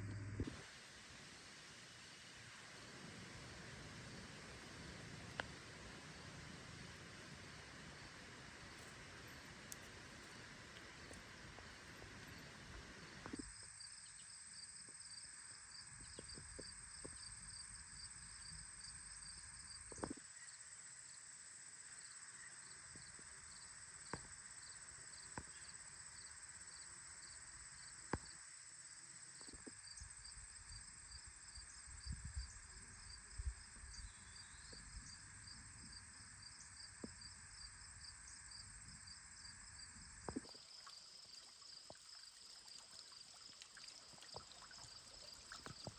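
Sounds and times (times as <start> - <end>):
crickets chirping: 0.0 - 45.9
faint clicks: 8.7 - 12.3.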